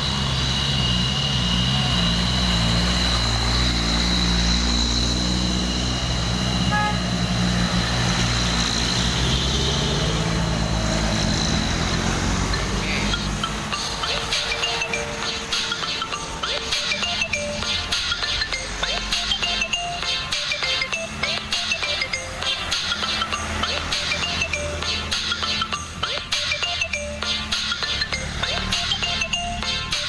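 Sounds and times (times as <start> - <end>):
thin high whine: 0.0 - 25.9
truck engines rumbling: 0.0 - 30.0.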